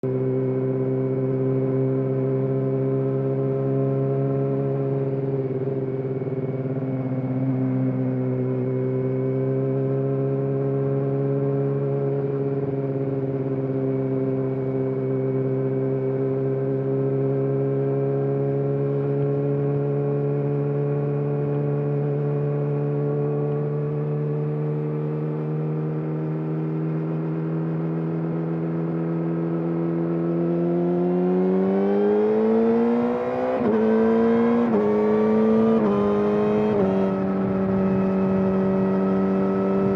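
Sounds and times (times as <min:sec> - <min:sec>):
motorcycle engine running: 0:16.2 - 0:39.9.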